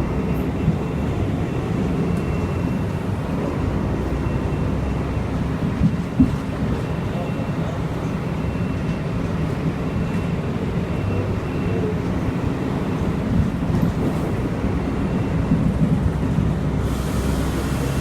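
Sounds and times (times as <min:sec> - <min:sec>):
low rumbling like a vehicle: 0:00.0 - 0:18.0
hiss: 0:16.8 - 0:18.0.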